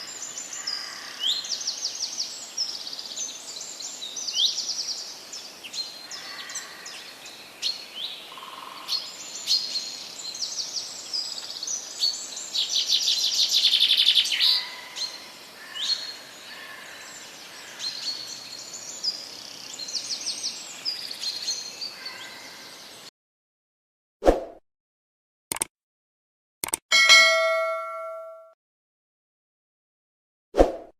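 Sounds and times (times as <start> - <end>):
birds chirping and trilling: 0.0 - 23.1.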